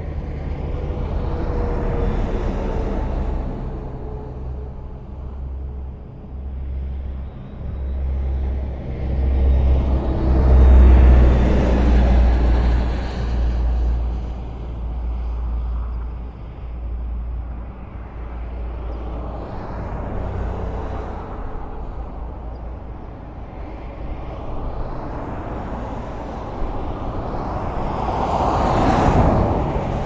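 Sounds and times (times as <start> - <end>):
highway traffic rumble: 0.0 - 30.0
vehicle passing close: 23.8 - 30.0.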